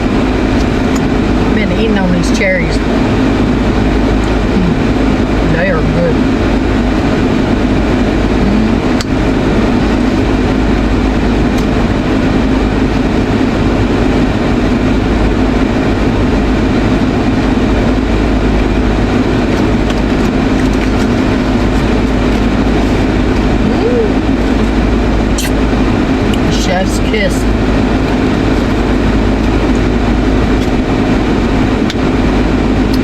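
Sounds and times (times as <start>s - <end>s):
air blowing in car cabin: 0.0s - 33.0s
car engine hum: 0.0s - 33.0s.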